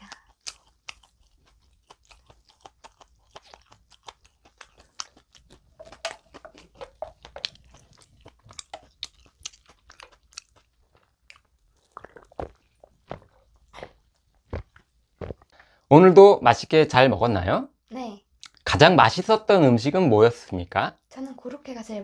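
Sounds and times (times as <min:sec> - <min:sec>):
person chewing bread: 0:00.0 - 0:15.8
person gulping soda: 0:05.2 - 0:15.6.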